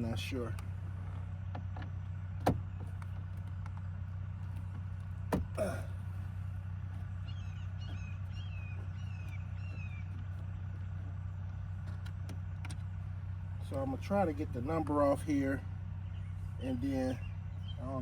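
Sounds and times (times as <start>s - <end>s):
steady low hum: 0.0s - 18.0s
bird chirping: 6.9s - 11.5s, 15.9s - 18.0s.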